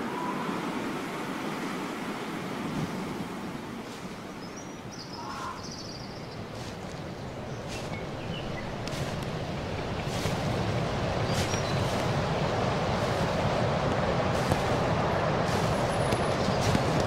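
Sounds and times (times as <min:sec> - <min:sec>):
short high bird calls: 0:05.0 - 0:06.2
steady rushing noise: 0:06.2 - 0:17.0.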